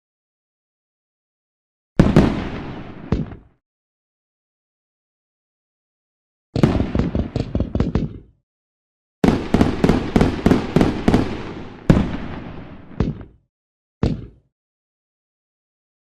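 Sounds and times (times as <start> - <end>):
fireworks bangs: 2.0 - 3.5, 6.6 - 8.3, 9.2 - 13.4.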